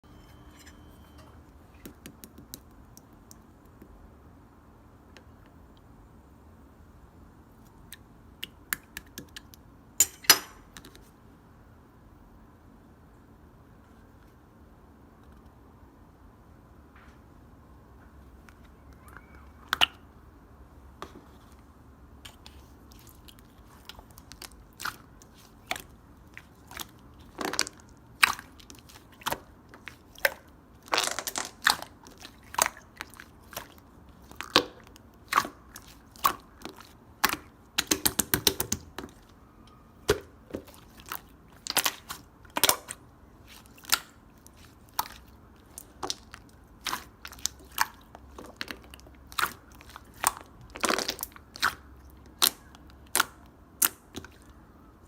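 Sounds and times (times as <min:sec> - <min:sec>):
slime clicking and popping: 0:30.2 - 0:38.9.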